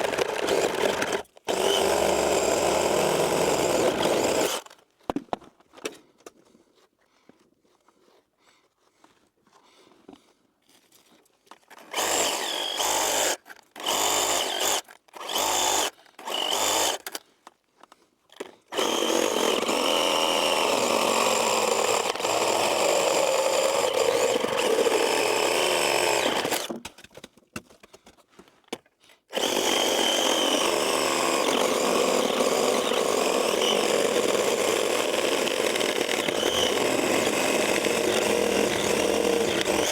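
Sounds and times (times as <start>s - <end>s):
chainsaw revving and cutting: 0.0s - 4.6s, 11.8s - 17.2s, 18.7s - 26.8s, 29.3s - 39.9s.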